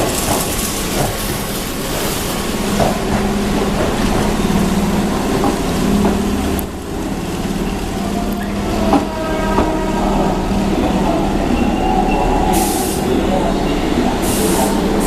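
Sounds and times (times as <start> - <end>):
electric train humming and rumbling: 0.0 - 15.0.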